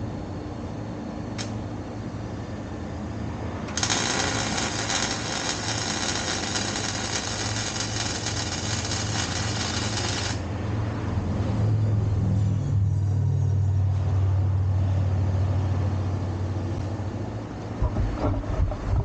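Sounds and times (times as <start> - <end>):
welding arc crackling: 3.7 - 10.5
low hum: 10.8 - 19.0.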